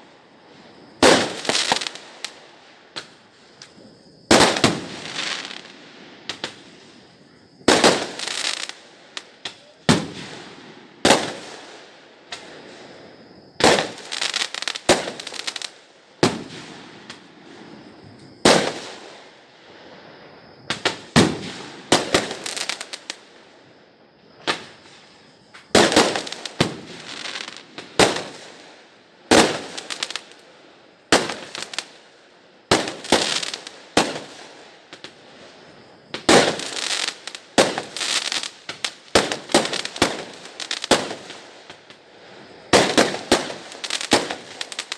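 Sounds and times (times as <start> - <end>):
fireworks crackling: 0.9 - 20.0, 20.7 - 23.4, 24.4 - 32.1, 32.7 - 44.9
fireworks bangs: 1.0 - 2.4, 4.3 - 6.9, 7.6 - 11.7, 20.7 - 23.1, 25.6 - 28.5, 36.1 - 42.0, 42.7 - 44.9.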